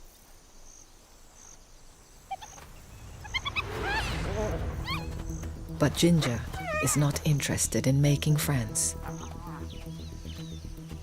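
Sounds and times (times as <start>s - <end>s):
faint insect chirps: 0.0s - 5.6s
low rumble: 2.6s - 8.3s
hyenas calling: 6.2s - 7.3s, 8.6s - 9.9s.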